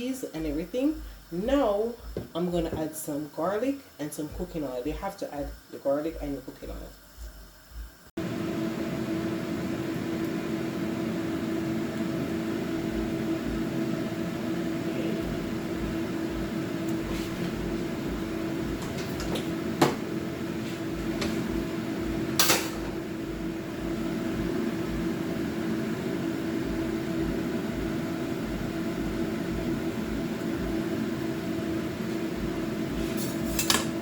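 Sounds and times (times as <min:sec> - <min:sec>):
kitchen appliance humming: 0:08.0 - 0:34.0.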